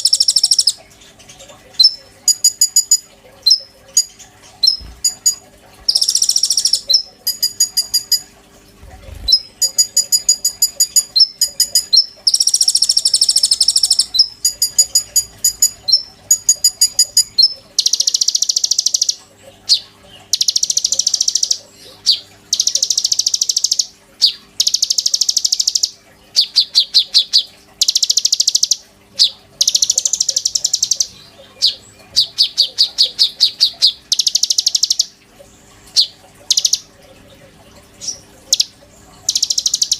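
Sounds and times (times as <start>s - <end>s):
songbird singing trills: 0.0s - 8.3s, 9.1s - 35.2s, 35.9s - 36.9s, 38.0s - 39.9s
faint steady hum: 0.0s - 39.9s.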